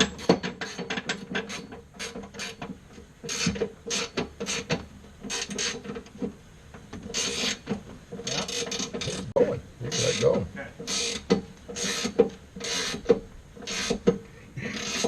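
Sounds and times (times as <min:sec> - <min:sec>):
hand ratchet clicking: 0:09.9 - 0:15.0.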